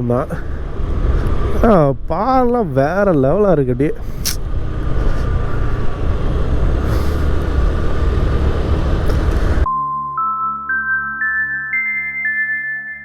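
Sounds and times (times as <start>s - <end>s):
scooter road noise: 0.0s - 9.7s
melody of clear single notes: 9.6s - 13.0s.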